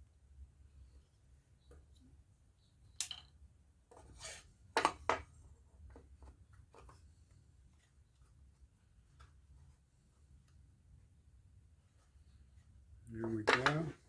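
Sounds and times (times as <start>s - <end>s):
wooden parts clicking and knocking: 13.4s - 14.0s.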